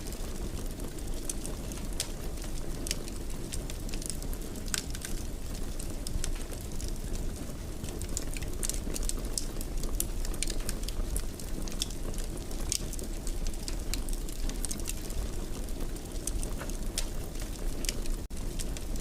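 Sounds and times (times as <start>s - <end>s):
low rumble of flames: 0.0s - 19.0s
wood fire crackling: 0.0s - 19.0s.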